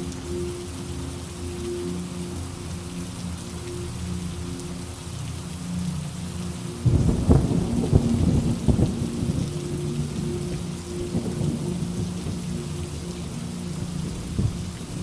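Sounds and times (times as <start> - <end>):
steady rain: 0.0 - 15.0
thunder clap and rumble: 6.8 - 10.2.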